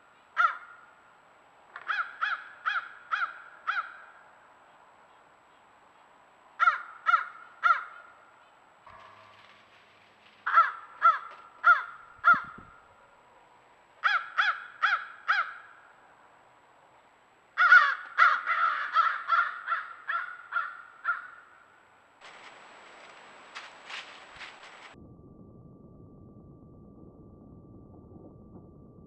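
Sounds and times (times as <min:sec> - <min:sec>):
crows cawing: 0:00.4 - 0:00.9, 0:01.7 - 0:04.3, 0:06.6 - 0:08.3, 0:08.9 - 0:12.9, 0:14.0 - 0:15.9, 0:17.6 - 0:23.1.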